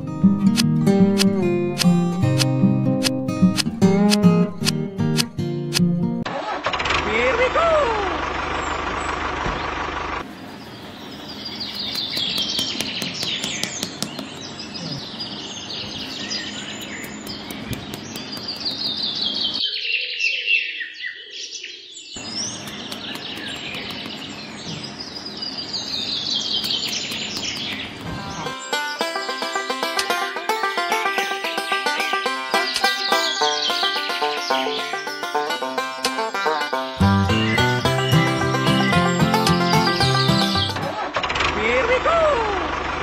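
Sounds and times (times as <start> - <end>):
small birds chirping and trilling: 8.5 - 41.0.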